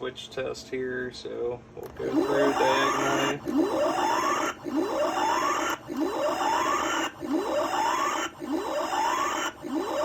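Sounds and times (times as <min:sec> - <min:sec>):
electronic rising swoop tone: 0:02.0 - 0:10.0.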